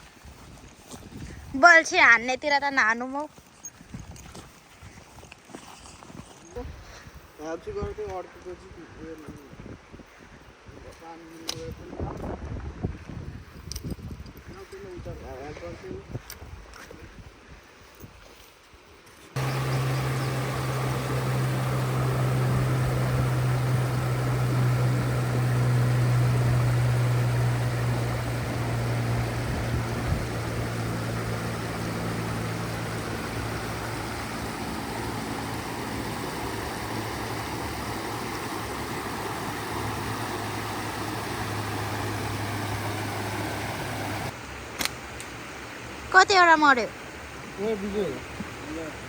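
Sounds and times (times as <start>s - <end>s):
low motor hum: 19.4s - 44.3s
broad rushing noise: 19.4s - 44.4s.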